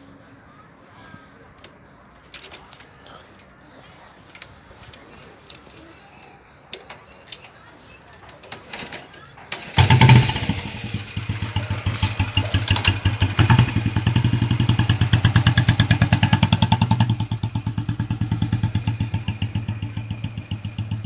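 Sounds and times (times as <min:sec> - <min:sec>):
motorcycle engine idling: 0:09.6 - 0:21.0.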